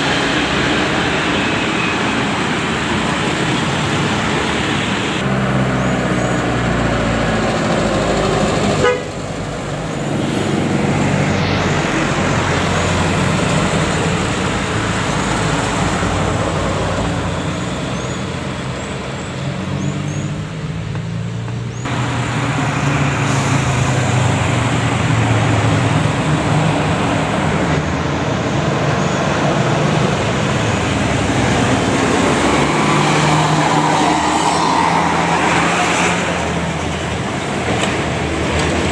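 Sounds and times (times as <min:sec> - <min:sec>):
buses and trucks in traffic: 0:00.0 - 0:38.9
horn toots: 0:08.8 - 0:09.2.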